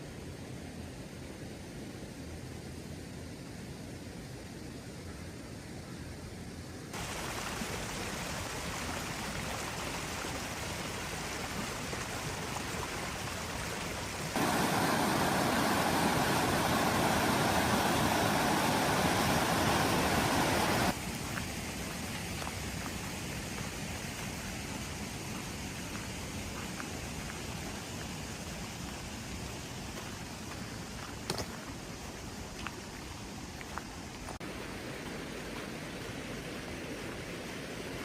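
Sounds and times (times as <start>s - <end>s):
rushing running water: 6.9s - 38.0s
steady rain: 6.9s - 38.0s.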